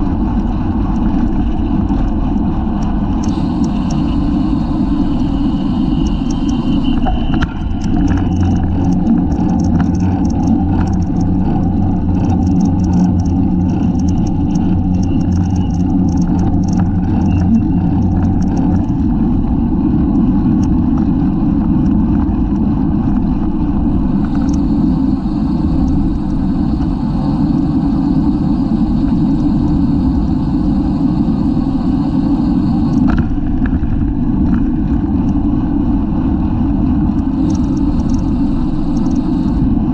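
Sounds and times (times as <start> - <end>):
steady low hum: 0.0 - 39.9
wind buffeting microphone: 0.0 - 39.9
faint ticks: 0.9 - 19.1, 24.2 - 27.8, 37.1 - 39.7.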